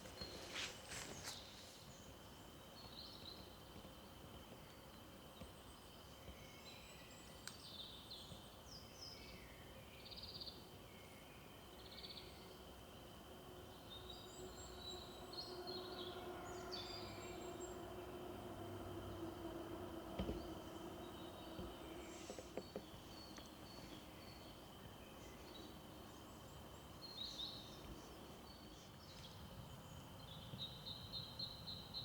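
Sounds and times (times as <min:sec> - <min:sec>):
small birds chirping and trilling: 0:04.6 - 0:32.0
low distant hum: 0:10.6 - 0:31.7.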